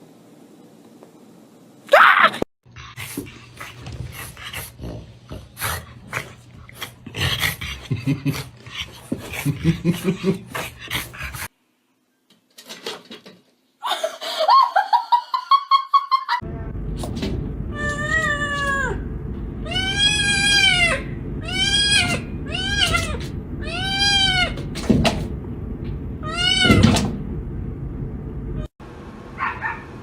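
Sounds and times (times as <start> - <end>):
dog whimpering and growling: 2.8 - 11.5, 19.7 - 24.6.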